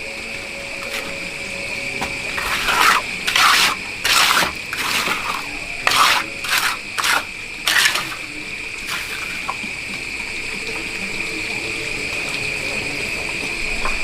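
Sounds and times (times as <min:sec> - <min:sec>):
steady high-pitched tone: 0:00.0 - 0:12.1
rough scraping strokes: 0:00.8 - 0:01.2, 0:02.3 - 0:09.6.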